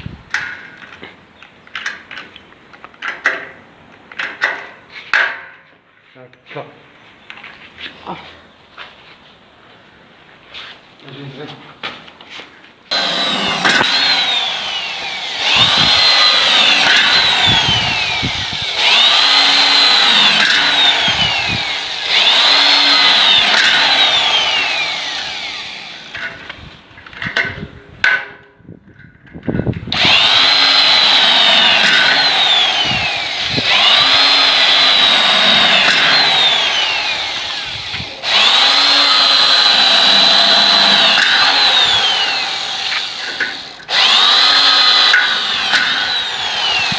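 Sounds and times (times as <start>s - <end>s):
electric drill motor whining: 12.9s - 26.7s, 29.9s - 46.9s.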